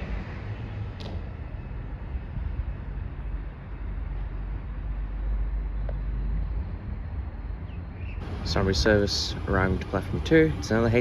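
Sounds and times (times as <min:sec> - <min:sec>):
wind on microphone: 0:06.4 - 0:11.0
low vehicle rumble: 0:08.2 - 0:11.0.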